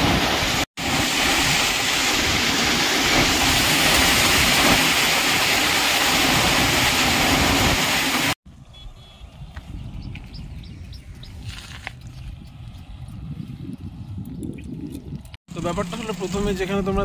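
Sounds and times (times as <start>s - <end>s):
heavy rain pouring: 0.0s - 8.4s.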